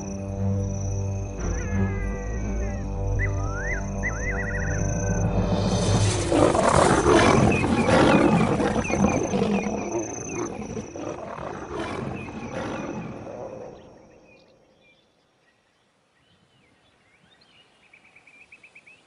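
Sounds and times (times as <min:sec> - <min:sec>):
dramatic music: 0:00.0 - 0:08.2
lions roaring in a fight: 0:06.0 - 0:13.9.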